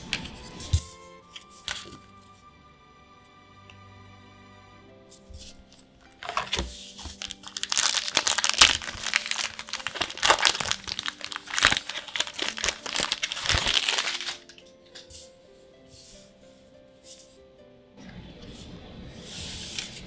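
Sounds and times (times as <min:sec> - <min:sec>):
soft background music: 0:00.0 - 0:20.0
foil wrapper crinkling: 0:06.2 - 0:14.6.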